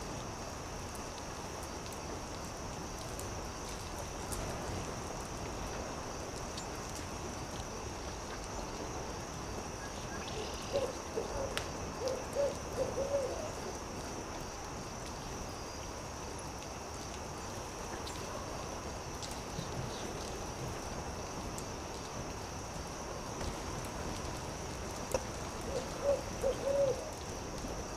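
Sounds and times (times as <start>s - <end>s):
campfire crackling: 0.0s - 27.9s
owl hooting: 10.7s - 13.6s, 25.7s - 27.1s.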